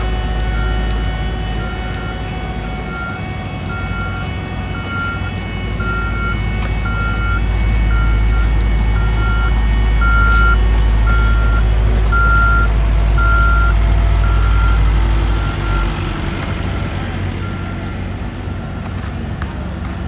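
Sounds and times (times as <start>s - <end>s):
reversing alarm beeping: 0.0s - 18.4s
diesel engine low rumble: 0.0s - 20.0s.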